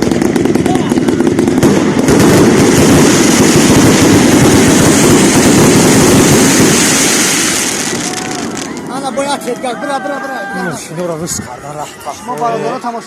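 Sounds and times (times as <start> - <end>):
fireworks bangs and crackle: 0.0 - 9.8.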